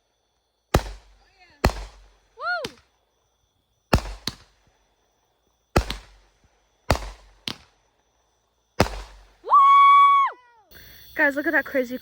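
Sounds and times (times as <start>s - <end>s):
firework bangs: 0.7s - 2.9s, 3.9s - 4.7s, 5.7s - 7.8s, 8.8s - 9.5s
quieter firework crack: 0.7s - 3.0s, 3.9s - 4.9s, 5.7s - 7.9s, 8.7s - 9.5s.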